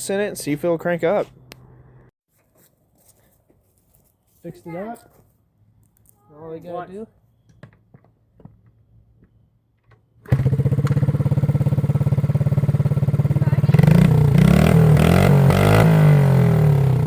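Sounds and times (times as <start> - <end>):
minibike engine starting and revving: 10.2 - 17.0.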